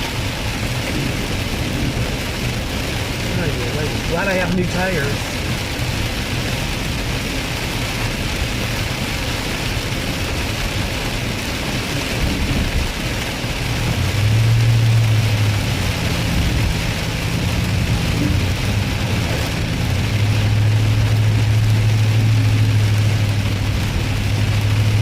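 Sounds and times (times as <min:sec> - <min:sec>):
rain and tyres on wet road: 0:00.0 - 0:25.0
low engine drone: 0:11.6 - 0:25.0.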